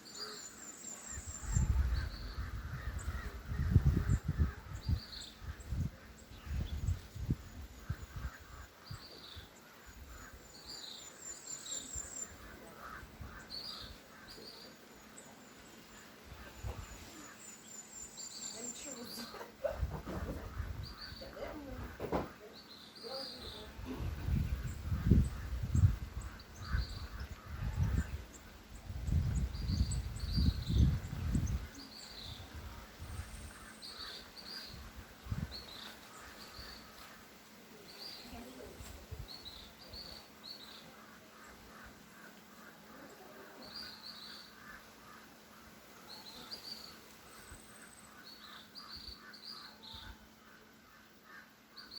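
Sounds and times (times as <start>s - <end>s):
birds chirping: 0.0s - 51.9s
wind buffeting microphone: 1.1s - 10.3s, 19.6s - 22.3s, 23.6s - 36.7s.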